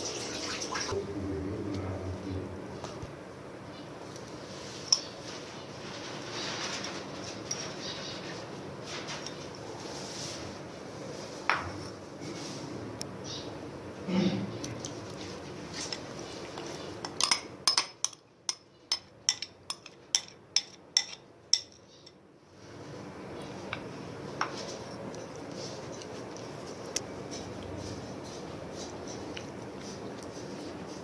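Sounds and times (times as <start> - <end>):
utensil clinking against a pot: 17.0 - 22.2.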